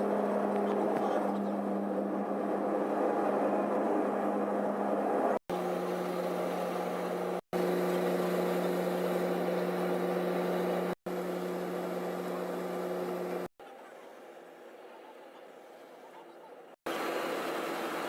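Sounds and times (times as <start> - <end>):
aircraft cabin engine drone: 0.0 - 13.5
constant low hum: 0.0 - 18.0.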